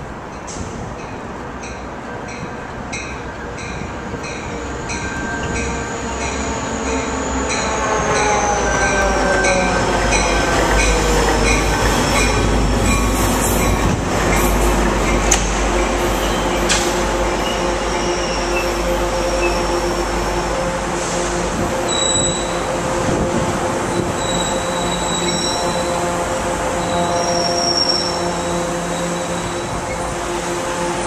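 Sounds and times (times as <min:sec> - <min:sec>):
wheels rumbling on rail: 0:00.0 - 0:31.0
locomotive engine passing: 0:01.2 - 0:31.0
high brake squeal: 0:21.9 - 0:22.6, 0:24.2 - 0:25.8, 0:26.8 - 0:30.0.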